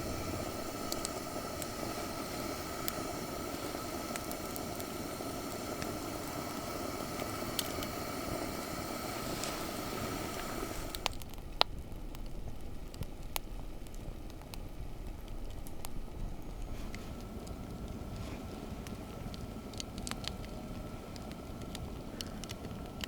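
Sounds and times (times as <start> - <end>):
steady hiss: 0.0 - 23.0
wood fire crackling: 0.0 - 23.0.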